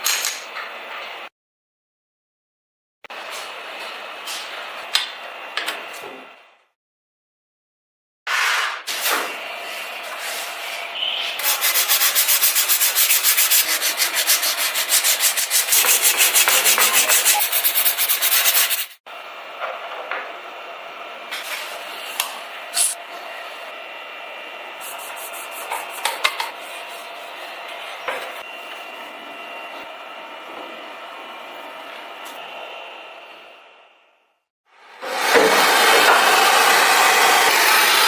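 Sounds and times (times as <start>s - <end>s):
sandpaper sanding strokes: 11.4s - 19.0s, 24.8s - 27.3s.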